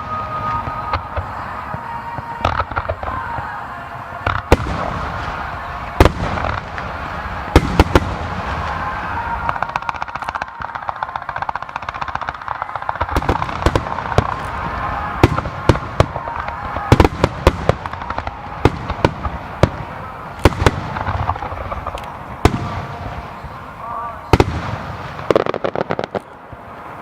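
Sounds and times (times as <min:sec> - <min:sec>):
fireworks crackling: 0:00.0 - 0:27.0.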